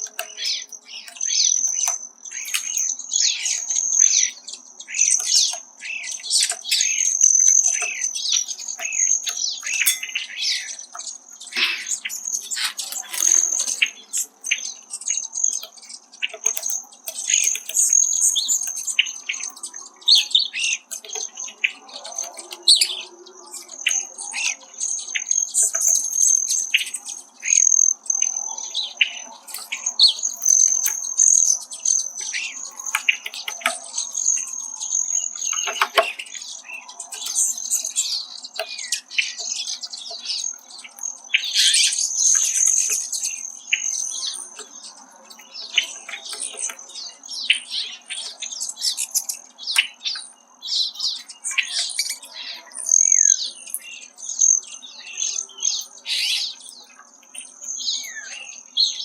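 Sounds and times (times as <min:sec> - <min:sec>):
soft bird chirps: 0:00.0 - 0:59.0
bill tapping wire cage: 0:05.0 - 0:23.0, 0:29.4 - 0:41.1.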